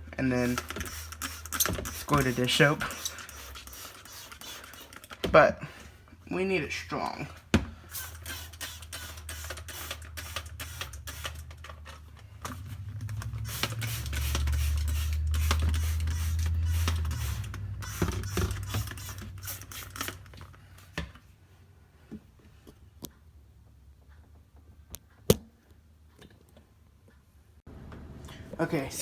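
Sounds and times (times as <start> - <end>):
low hum: 10.5 - 19.7.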